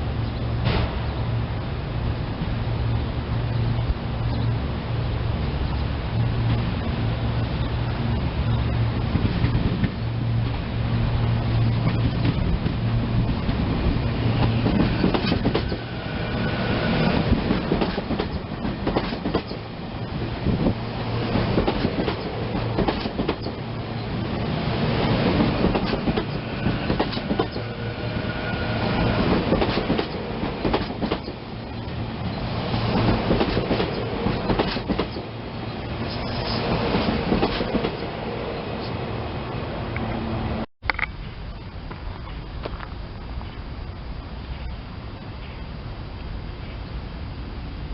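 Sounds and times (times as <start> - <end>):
commuter train passing: 0.0 - 47.9
wheels clicking over rail joints: 17.4 - 19.7, 21.3 - 23.6, 32.9 - 35.3.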